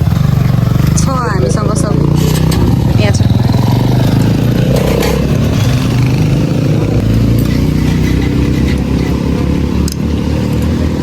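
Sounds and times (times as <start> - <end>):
motorbike engine rumbling: 0.0 - 11.0.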